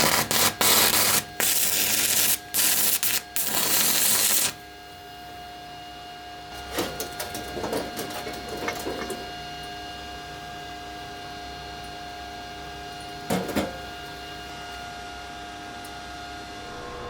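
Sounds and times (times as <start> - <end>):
welding machine humming: 0.0 - 5.5.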